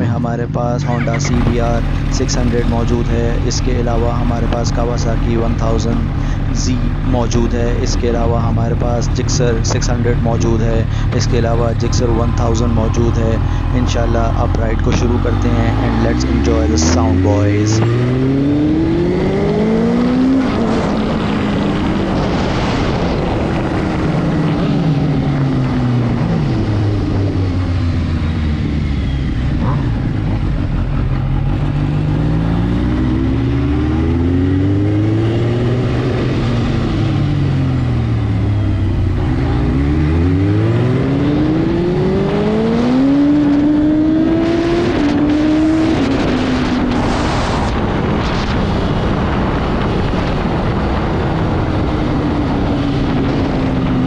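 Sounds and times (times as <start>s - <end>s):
motorbike engines accelerating: 0.0s - 54.0s
wind rush: 17.9s - 31.2s, 32.4s - 54.0s.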